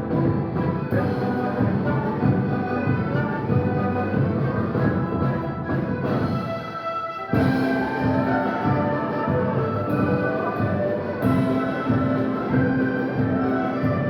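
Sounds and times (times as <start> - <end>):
live folk ensemble playing: 0.0 - 14.0.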